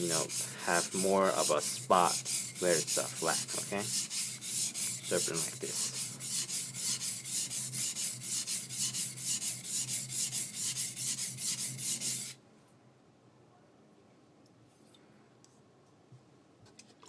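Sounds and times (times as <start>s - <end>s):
knife scraping on wet whetstone: 0.0s - 12.4s.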